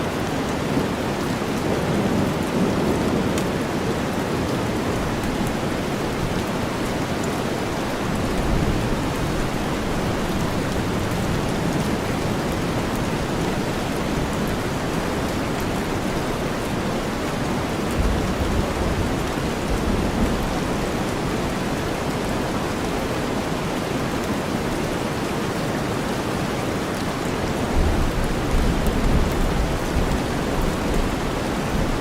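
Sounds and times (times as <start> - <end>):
steady rain: 0.0 - 32.0
low rumble of thunder: 17.9 - 22.4, 27.7 - 32.0.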